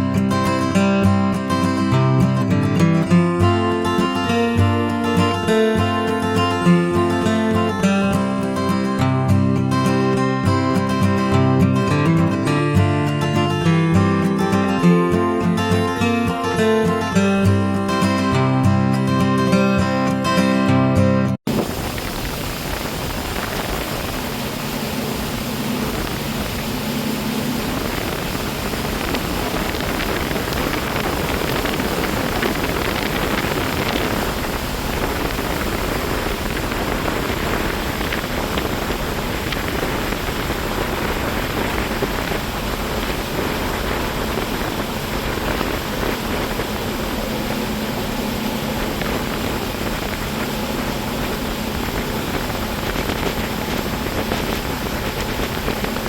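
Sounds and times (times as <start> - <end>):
wind and water rushing: 0.0 - 20.9, 21.5 - 56.0
boat engine low hum: 21.5 - 56.0.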